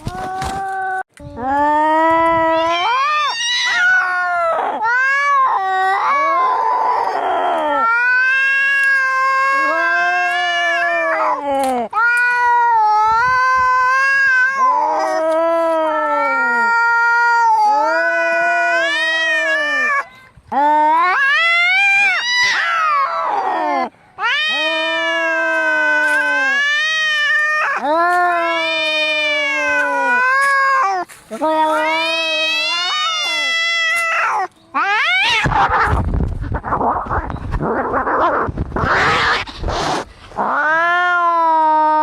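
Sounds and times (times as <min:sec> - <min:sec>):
cats yowling: 0:02.3 - 0:11.4, 0:12.0 - 0:42.0
cat hissing cry: 0:21.1 - 0:37.0, 0:37.6 - 0:42.0.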